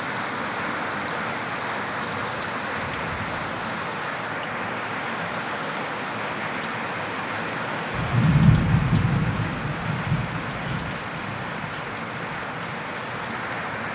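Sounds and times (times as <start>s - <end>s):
steady rain: 0.0s - 13.9s
thunder rumbling: 8.0s - 13.2s.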